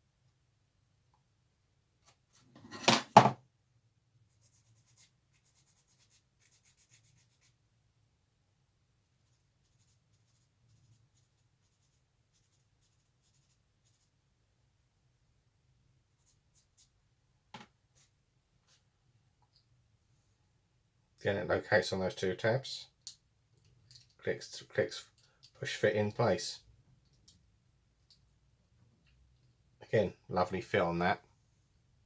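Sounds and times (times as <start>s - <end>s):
loud clatter of knocks: 2.8s - 3.4s.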